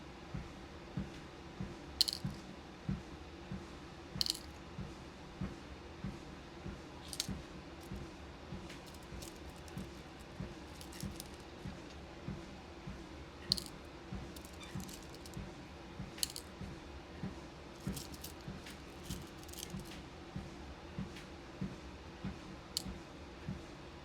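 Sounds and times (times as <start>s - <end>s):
beads clicking and rattling: 2.0s - 2.4s, 4.2s - 4.6s, 7.0s - 8.0s, 8.8s - 11.4s, 13.5s - 13.8s, 14.4s - 15.4s, 16.2s - 16.5s, 17.8s - 20.0s.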